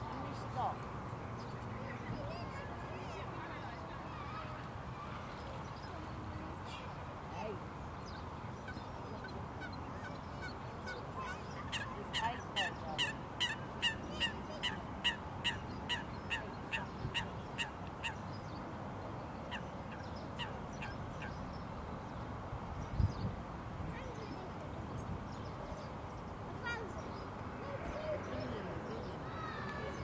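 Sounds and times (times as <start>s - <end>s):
water bird honking calls: 8.7s - 18.2s.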